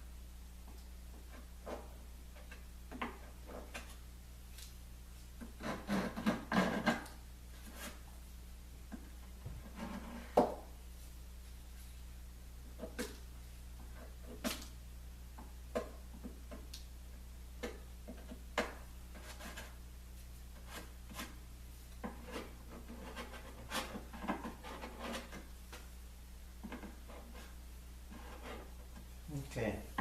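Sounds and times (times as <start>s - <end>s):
scraping and rubbing on wood: 1.1s - 4.0s, 5.4s - 8.2s, 8.9s - 10.7s, 12.7s - 14.7s, 15.4s - 25.9s, 26.6s - 29.1s.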